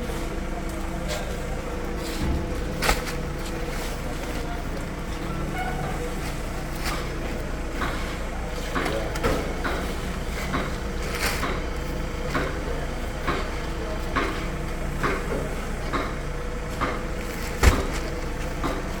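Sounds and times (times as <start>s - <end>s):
low engine hum: 0.0s - 19.0s
bags landing with thumps: 2.0s - 4.7s, 16.8s - 19.0s.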